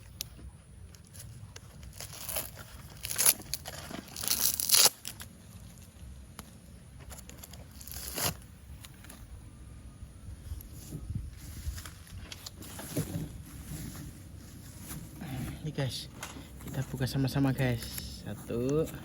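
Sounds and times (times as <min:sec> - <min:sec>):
packaging torn and crumpled: 0:01.1 - 0:05.9, 0:07.1 - 0:09.2.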